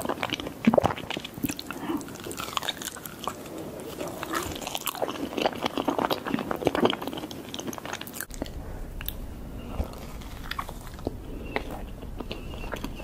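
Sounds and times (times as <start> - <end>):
wet chewing and mouth clicks: 0.0 - 13.0
low hum: 8.3 - 13.0.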